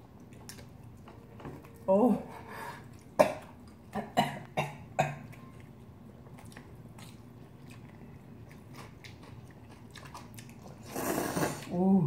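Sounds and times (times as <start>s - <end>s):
chewing noodles: 0.0s - 1.9s, 5.2s - 11.8s.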